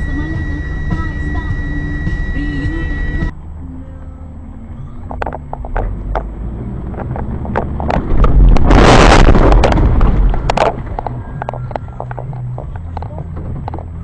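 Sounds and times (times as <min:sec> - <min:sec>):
low engine hum: 0:00.0 - 0:14.0
car crashing: 0:05.0 - 0:14.0.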